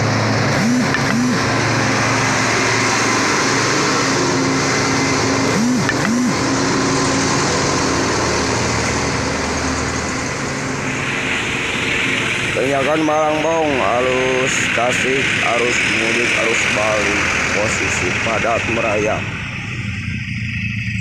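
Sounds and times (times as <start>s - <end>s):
short rising-and-falling tones: 0.0s - 12.6s
vehicles passing: 0.0s - 21.0s.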